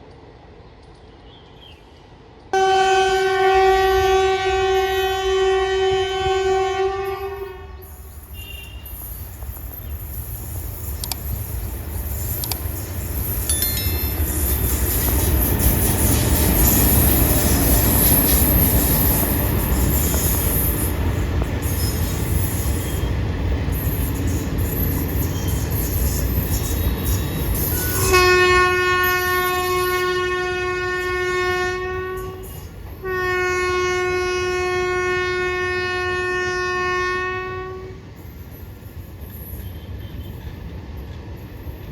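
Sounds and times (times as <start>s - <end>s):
train rumbling: 0.0s - 41.9s
locomotive horn blasts: 2.6s - 8.9s, 27.7s - 38.0s.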